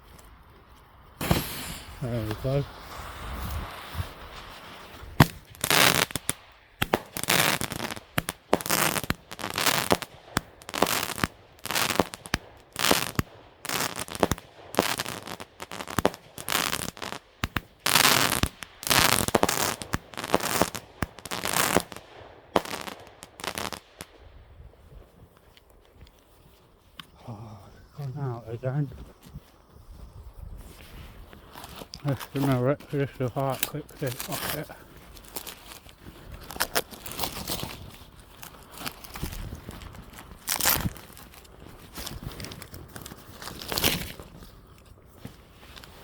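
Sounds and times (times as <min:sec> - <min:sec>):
firework hiss: 0:01.2 - 0:24.2
firework launch bangs: 0:01.2 - 0:24.2.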